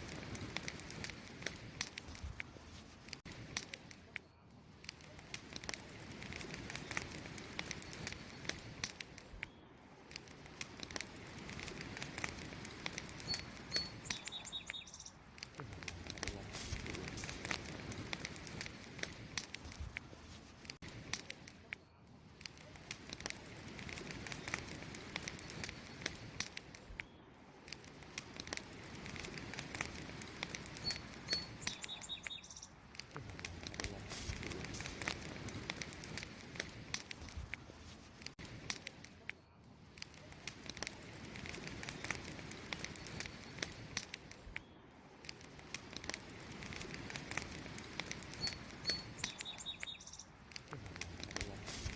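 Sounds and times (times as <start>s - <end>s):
wood fire crackling: 0.0s - 51.9s
bird chirps: 13.2s - 15.2s, 30.8s - 32.8s, 48.4s - 50.4s.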